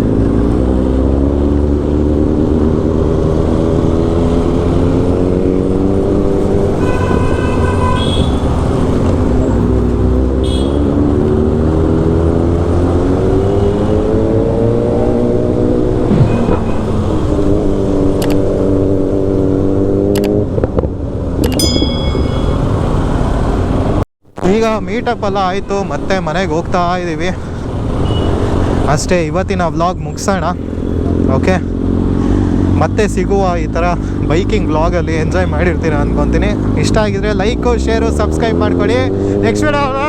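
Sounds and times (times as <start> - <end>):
motorcycle engine accelerating: 0.0 - 6.9, 7.6 - 24.0
vehicle horn beep: 6.8 - 8.7, 10.4 - 10.9, 28.0 - 28.4.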